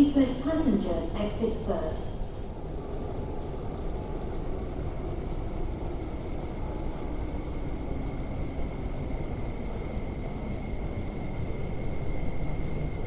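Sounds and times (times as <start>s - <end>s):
train rumble in tunnel: 0.0s - 13.0s.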